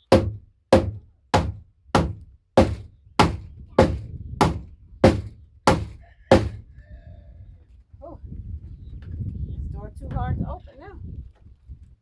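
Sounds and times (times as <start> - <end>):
hammer striking wood: 0.0 - 6.6.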